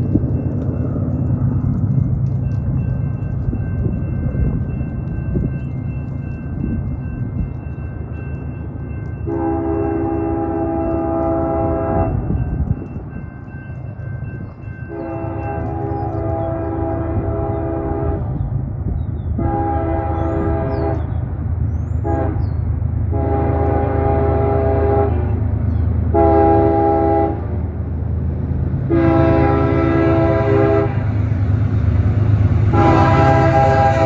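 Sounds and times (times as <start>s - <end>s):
train rumbling: 0.0s - 34.0s
train horn chime: 9.0s - 18.4s, 19.4s - 21.1s, 22.0s - 25.4s, 26.2s - 27.4s, 28.9s - 31.2s, 32.6s - 34.0s.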